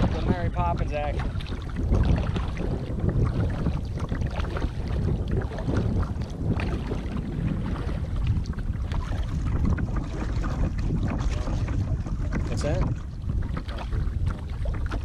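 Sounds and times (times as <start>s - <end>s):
small water splashes: 0.0s - 15.0s
strong wind buffeting microphone: 0.0s - 15.0s.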